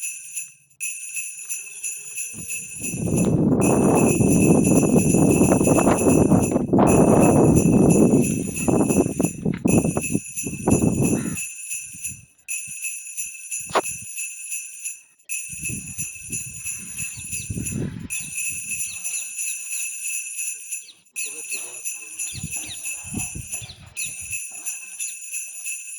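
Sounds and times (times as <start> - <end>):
high jingling ring: 0.0 - 25.9
loud rumbling noise: 2.8 - 11.2.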